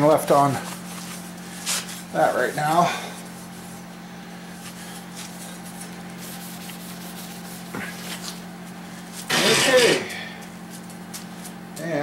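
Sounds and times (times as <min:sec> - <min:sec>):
low electrical hum: 0:00.0 - 0:12.0
rag rubbing metal: 0:09.2 - 0:10.2.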